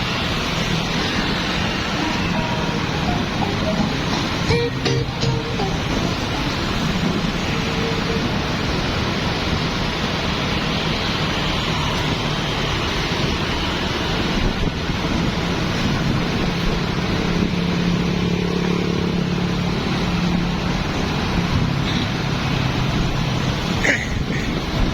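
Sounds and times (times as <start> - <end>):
street traffic rumble: 0.0 - 24.9.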